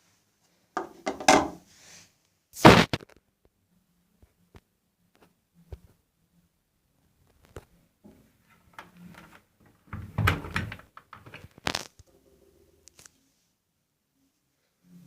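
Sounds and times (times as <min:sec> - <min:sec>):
washing machine clunks and knocks: 0:01.1 - 0:01.6.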